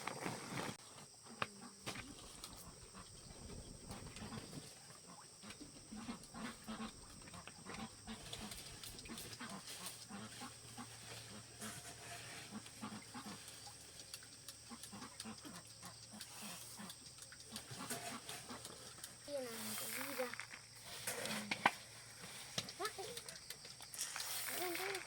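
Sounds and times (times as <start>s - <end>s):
piglets grunting: 14.7s - 20.6s
scattered clicks: 22.6s - 25.0s.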